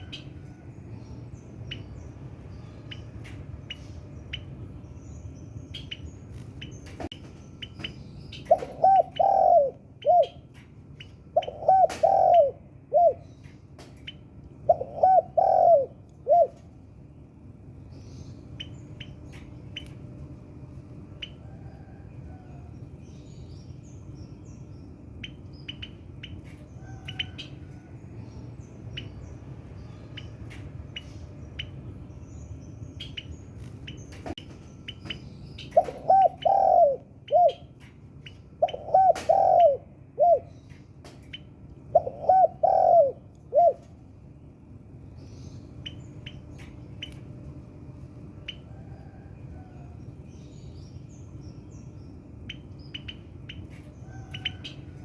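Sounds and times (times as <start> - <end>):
dove cooing: 8.4 - 10.5, 11.3 - 13.3, 14.6 - 16.7, 35.8 - 37.7, 38.6 - 40.5, 41.9 - 43.9.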